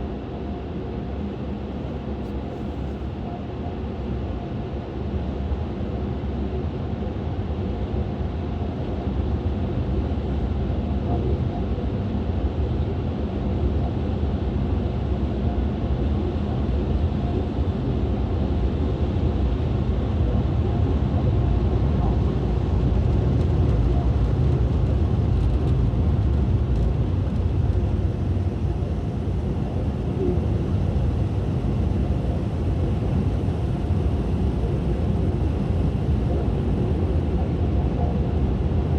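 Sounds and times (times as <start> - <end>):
low mechanical rumble: 14.8 - 38.9.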